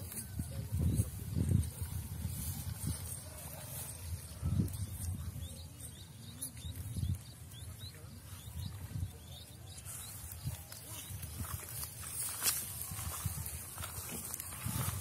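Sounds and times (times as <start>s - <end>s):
faint voices: 0.0s - 15.0s
small bird chirping: 4.2s - 13.9s.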